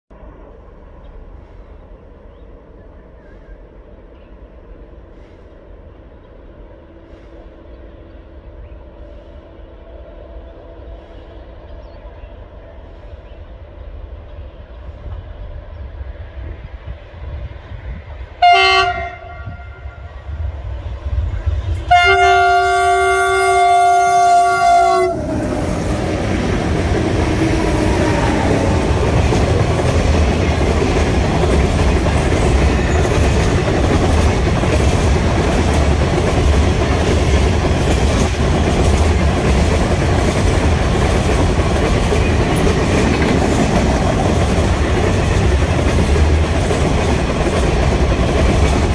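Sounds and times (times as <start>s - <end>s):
train wheels rumbling on rails: 0.1s - 48.9s
locomotive horn blasts: 18.4s - 20.1s, 21.9s - 25.5s.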